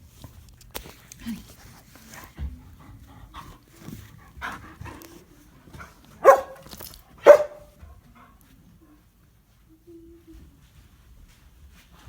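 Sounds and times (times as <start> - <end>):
puppies yipping: 6.2 - 7.6
puppies barking: 6.2 - 7.7.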